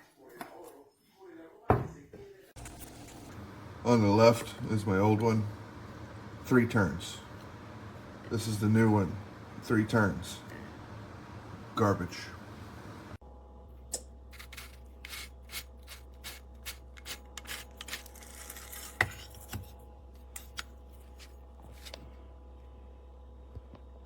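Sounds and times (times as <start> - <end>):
low hum: 2.6 - 14.3
salt grinder crunching: 14.3 - 19.0.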